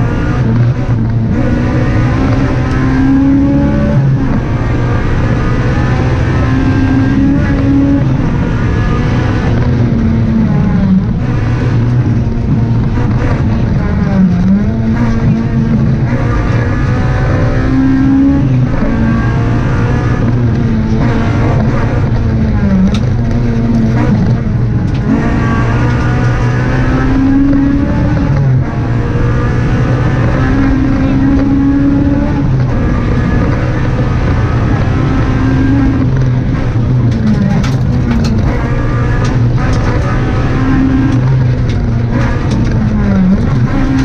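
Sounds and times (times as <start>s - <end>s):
rally car engine revving: 0.0s - 44.0s.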